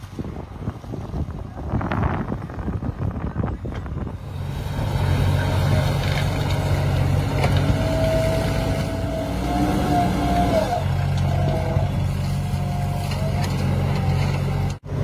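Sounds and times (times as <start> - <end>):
wind noise: 0.0 - 15.0
heavy diesel engine running: 4.1 - 15.0.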